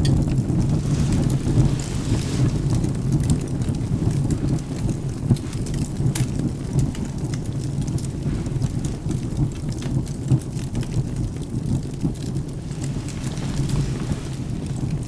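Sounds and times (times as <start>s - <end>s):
steady rain: 0.0s - 15.0s
wood fire crackling: 0.0s - 15.0s.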